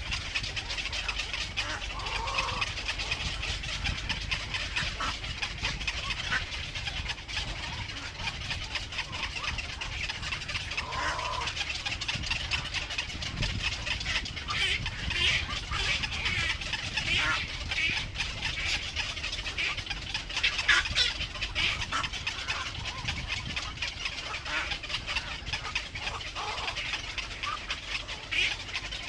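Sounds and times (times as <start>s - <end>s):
birds calling: 0.0s - 29.0s
steady low rumble: 0.0s - 29.0s.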